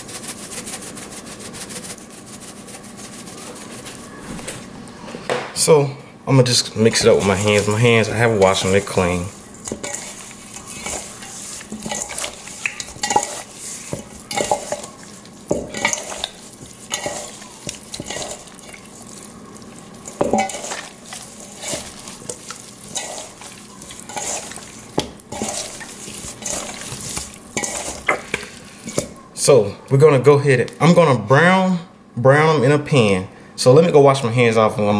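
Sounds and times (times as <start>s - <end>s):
wet squishing of meat: 6.8s - 29.2s
knocks and scrapes on metal bowl: 9.6s - 18.9s, 20.2s - 29.2s.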